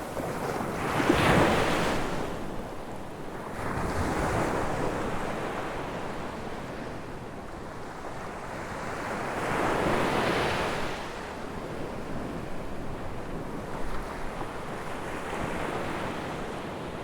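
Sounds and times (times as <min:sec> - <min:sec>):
ocean waves breaking on a beach: 0:00.0 - 0:17.0.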